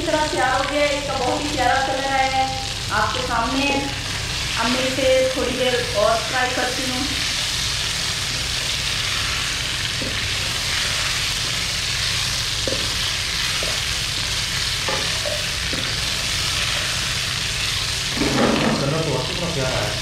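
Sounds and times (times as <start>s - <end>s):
chicken sizzling in hot oil: 0.0s - 20.0s
wooden spatula scraping pan: 18.1s - 19.0s.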